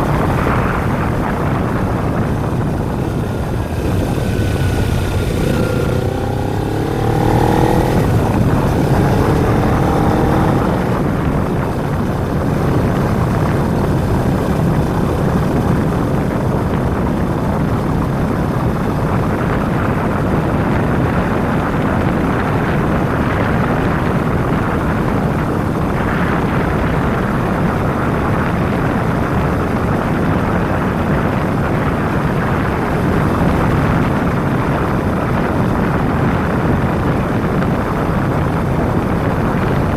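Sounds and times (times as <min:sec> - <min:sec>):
heavy wind rush: 0:00.0 - 0:39.9
motorcycle engine revving: 0:00.8 - 0:15.8.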